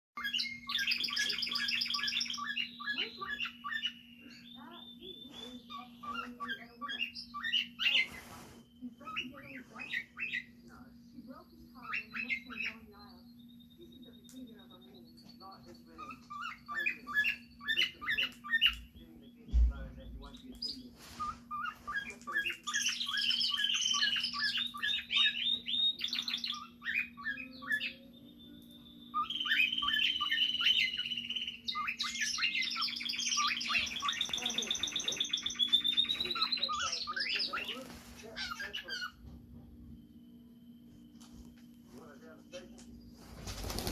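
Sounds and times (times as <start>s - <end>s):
cockatiel chirping and whistling: 0.2s - 10.5s, 11.8s - 14.3s, 16.0s - 18.8s, 20.0s - 39.2s
low hum: 39.1s - 43.9s.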